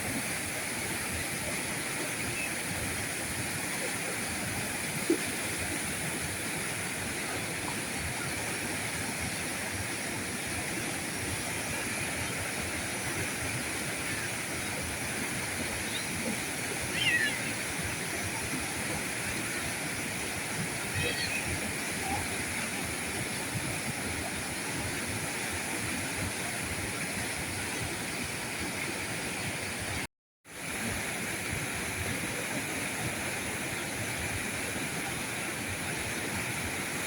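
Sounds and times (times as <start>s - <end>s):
river water rushing: 0.0s - 30.0s, 30.6s - 37.0s.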